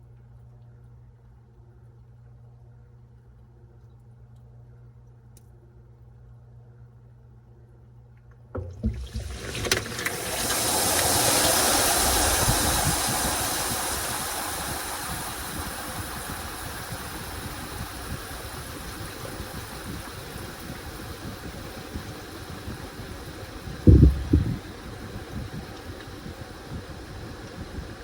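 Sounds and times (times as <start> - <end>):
washing machine clicks and knocks: 8.5 - 10.2, 23.9 - 24.6
water rushing into washing machine: 8.5 - 28.0.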